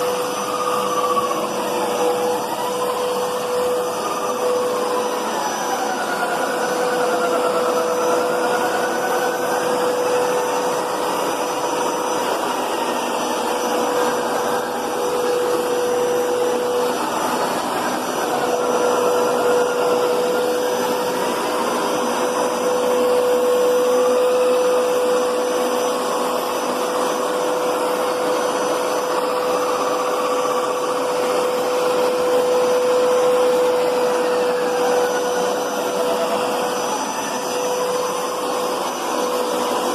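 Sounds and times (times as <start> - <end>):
carpet cleaner motor whine: 0.0 - 39.9.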